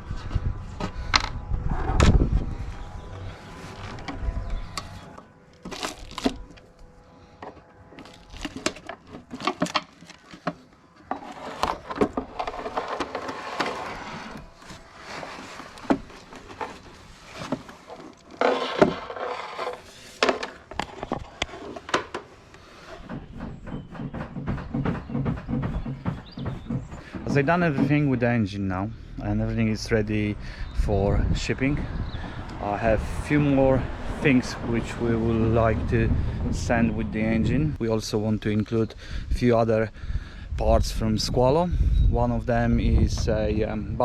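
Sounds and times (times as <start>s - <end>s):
scraping: 0.0s - 28.4s.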